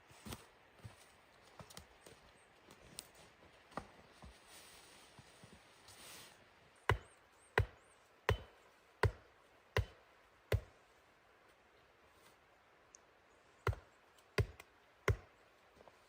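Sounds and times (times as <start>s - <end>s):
wood being chopped: 6.9s - 10.7s, 13.6s - 15.3s.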